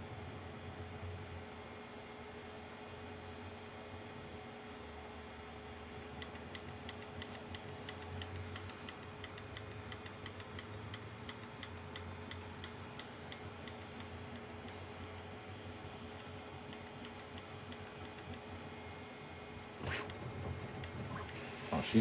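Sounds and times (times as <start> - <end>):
printer ticking: 6.2 - 15.2, 15.8 - 21.9
low motor hum: 12.2 - 22.0.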